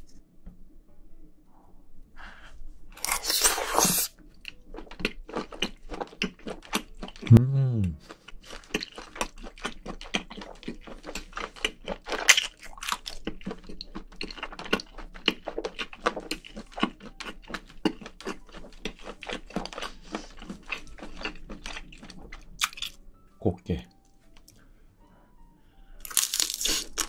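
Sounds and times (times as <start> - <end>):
chewing with crunchy mouth clicks: 3.0 - 7.4, 8.0 - 23.0, 26.0 - 27.0.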